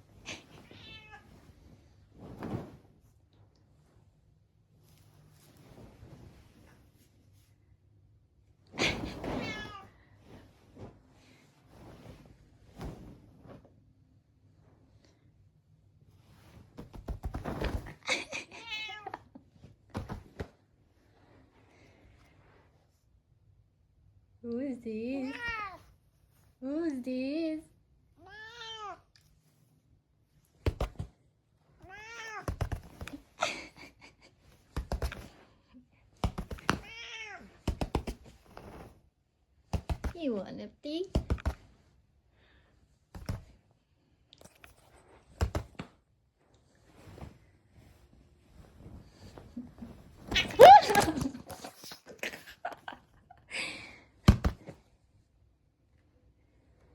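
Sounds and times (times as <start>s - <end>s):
soft cat sounds: 0.2s - 1.6s, 9.1s - 10.2s, 25.2s - 26.2s, 28.1s - 29.4s, 31.7s - 33.4s, 36.3s - 38.2s
cat meowing: 0.7s - 1.3s, 28.2s - 29.0s, 36.8s - 37.5s.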